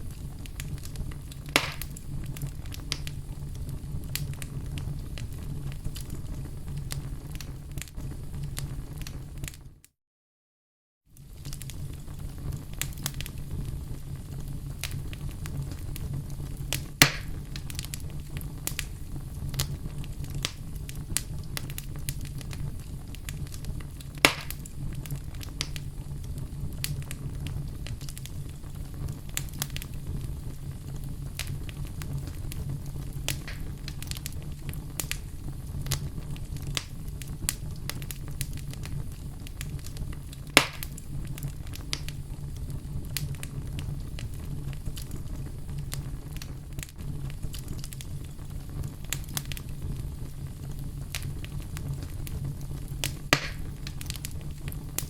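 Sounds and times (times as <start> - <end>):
fire crackling: 0.0 - 9.8, 11.1 - 55.0
low rumble of fire: 0.0 - 9.9, 11.0 - 55.0
loud sharp pops: 1.5 - 2.0, 16.8 - 17.4, 24.2 - 24.7, 33.3 - 33.8, 40.6 - 41.0, 53.0 - 53.8.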